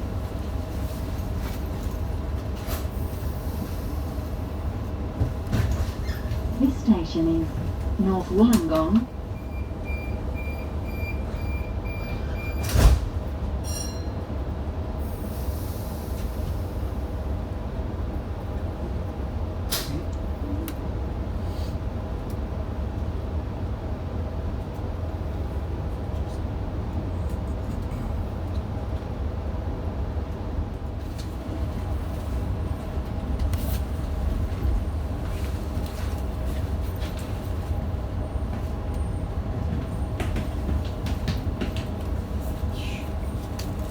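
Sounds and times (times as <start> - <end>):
train low hum: 0.0 - 43.9
door warning beeps: 8.4 - 13.0.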